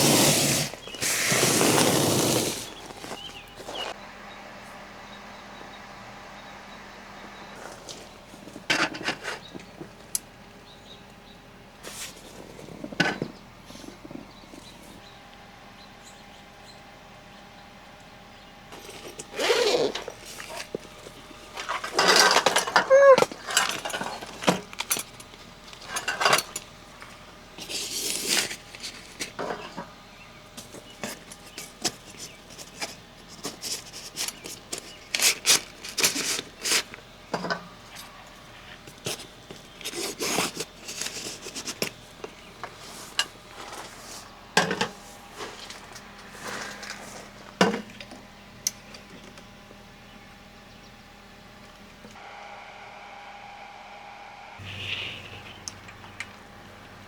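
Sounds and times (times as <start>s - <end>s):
objects clinking and knocking: 18.7s - 26.7s
brief voice-like sound: 22.9s - 23.3s.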